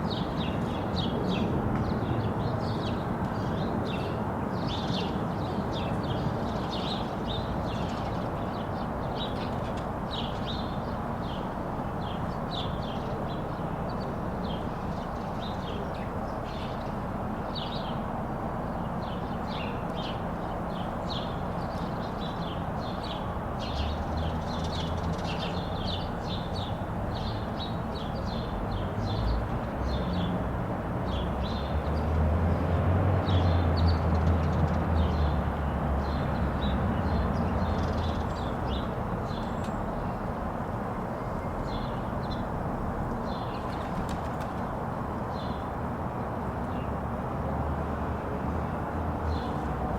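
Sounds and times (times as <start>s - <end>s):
city noise hum: 0.0s - 49.9s
small birds chirping: 41.1s - 45.7s.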